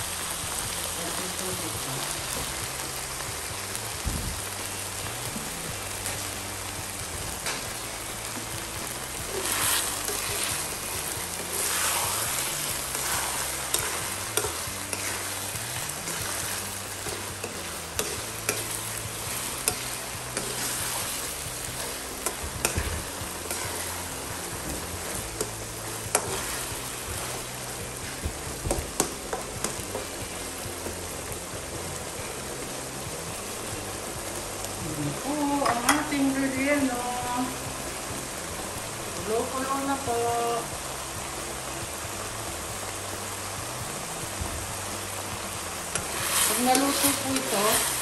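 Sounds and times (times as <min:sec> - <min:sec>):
food sizzling in a wok: 0:00.0 - 0:48.0
metal spoon scraping a pan: 0:09.2 - 0:28.2, 0:45.9 - 0:48.0.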